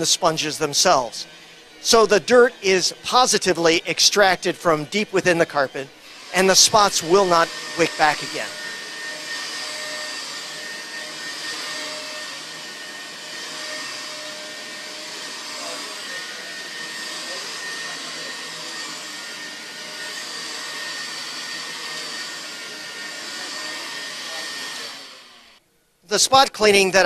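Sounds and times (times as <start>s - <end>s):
vacuum cleaner running over carpet: 0.0s - 25.5s.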